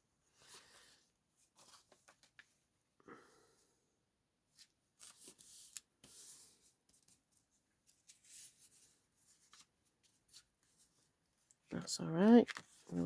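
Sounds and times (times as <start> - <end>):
paper rustling: 0.4 - 2.6, 12.5 - 13.0.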